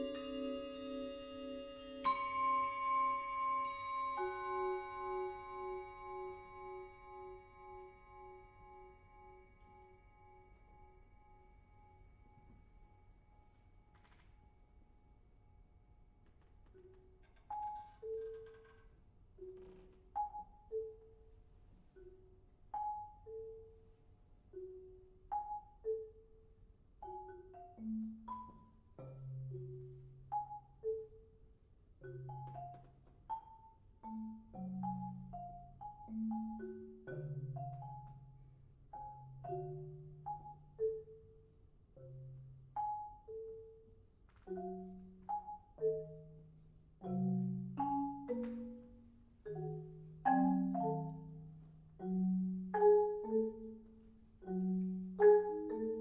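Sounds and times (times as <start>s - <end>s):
marimba notes: 0.0s - 13.4s, 24.6s - 31.4s, 32.0s - 56.0s
vibraphone notes: 0.0s - 14.5s, 19.4s - 56.0s.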